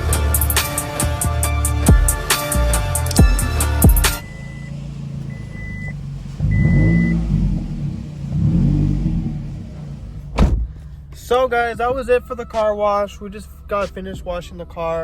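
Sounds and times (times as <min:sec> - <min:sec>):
music with drums: 0:00.0 - 0:04.2
car engine running: 0:00.0 - 0:15.0.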